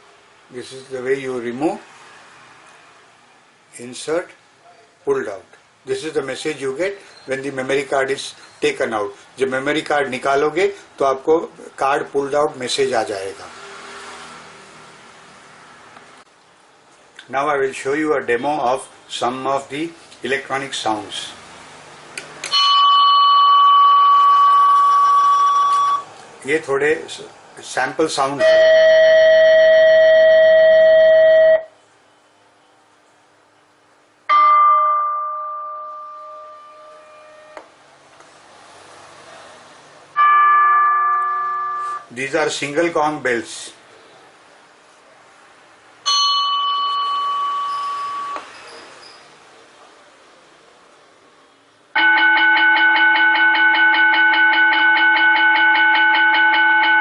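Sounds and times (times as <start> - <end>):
struck bell ringing: 22.5 - 26.0, 34.3 - 37.6, 40.2 - 42.1, 46.1 - 48.4, 52.0 - 57.0
electronic school bell tone: 22.5 - 26.1, 28.4 - 31.7, 34.3 - 37.6, 40.2 - 42.1, 46.0 - 48.4, 52.0 - 57.0.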